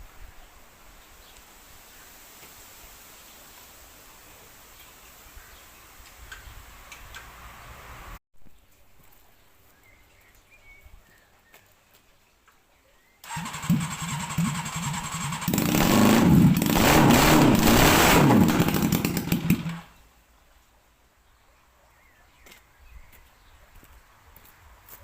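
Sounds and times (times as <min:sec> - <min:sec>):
lawn mower engine revving: 0:13.2 - 0:19.9.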